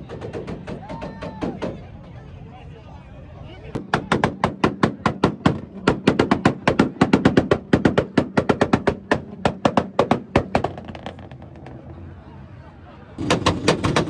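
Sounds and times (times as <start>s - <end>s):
rapid exhaust pops: 13.2s - 14.0s.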